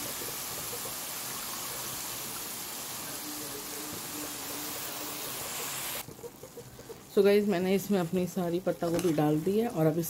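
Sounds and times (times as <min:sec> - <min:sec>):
food sizzling in a pan: 0:00.0 - 0:10.0.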